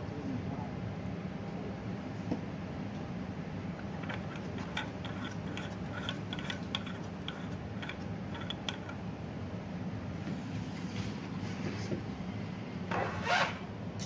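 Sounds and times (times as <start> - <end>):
steady low hum: 0.0 - 14.0
light clicks and taps of parts: 4.0 - 9.0.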